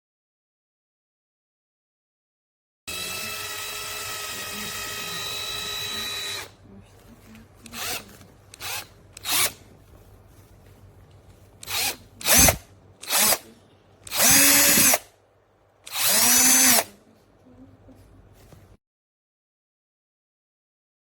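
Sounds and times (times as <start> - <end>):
cordless drill motor whine: 2.9 - 6.6, 7.7 - 9.6, 11.6 - 13.4, 14.1 - 15.0, 15.9 - 16.9.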